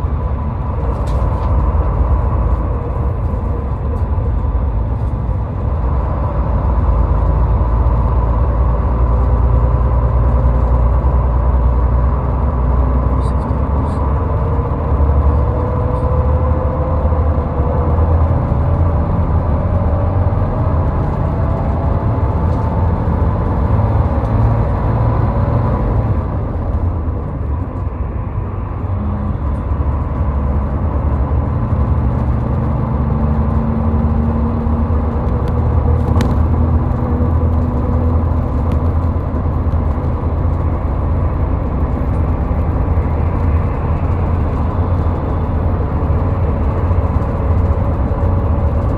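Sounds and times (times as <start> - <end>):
car engine and tyre rumble: 0.0 - 48.9.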